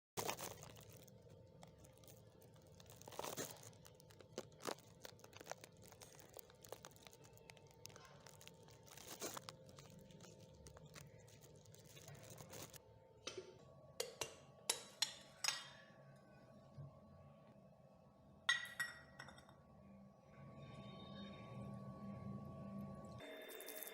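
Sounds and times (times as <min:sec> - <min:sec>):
faint crackling: 0:00.2 - 0:12.8.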